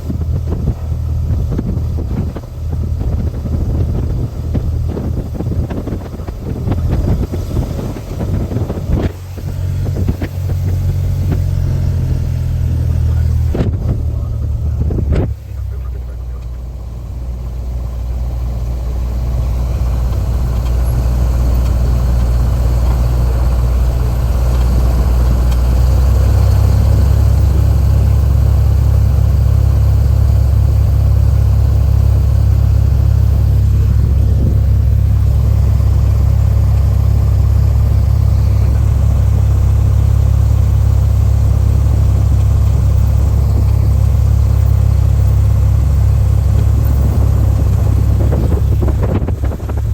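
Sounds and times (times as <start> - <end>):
light aircraft engine drone: 0.0 - 49.9.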